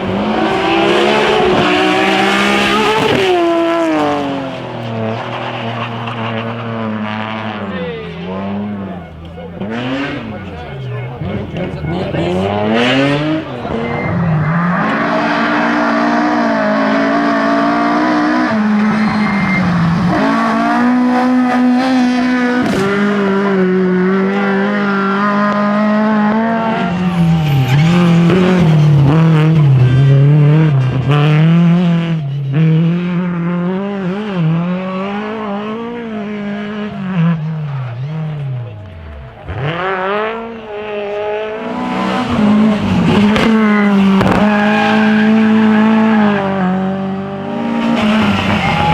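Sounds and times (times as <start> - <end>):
car engine revving hard: 0.0 - 48.9
tyre squeal: 8.6 - 16.0, 18.5 - 20.3, 26.6 - 30.1.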